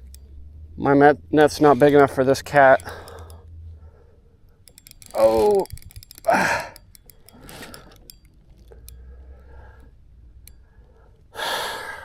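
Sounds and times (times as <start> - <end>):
fishing tackle clicks and rattles: 1.3 - 3.6, 4.5 - 11.0.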